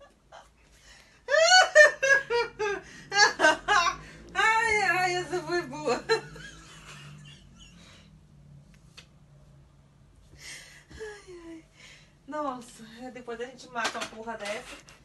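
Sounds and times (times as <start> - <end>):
high-pitched laughter: 1.3 - 4.0.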